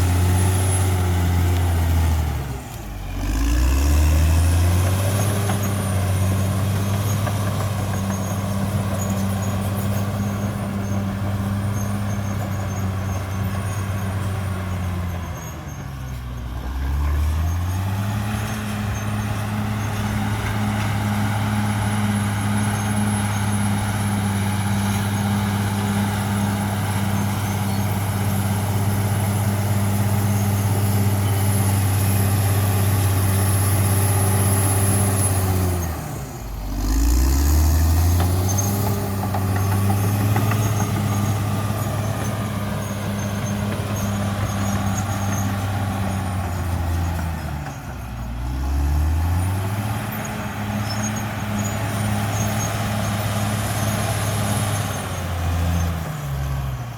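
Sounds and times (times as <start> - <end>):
bulldozer diesel engine running: 0.0 - 56.9.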